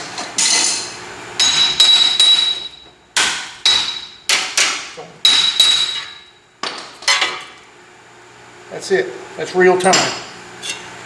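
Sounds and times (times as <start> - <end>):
hammer striking metal: 0.3 - 6.4.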